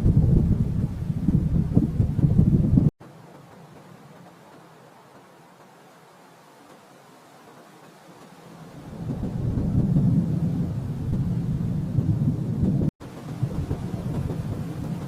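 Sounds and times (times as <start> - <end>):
rolling thunder: 0.0 - 2.9, 8.7 - 15.0.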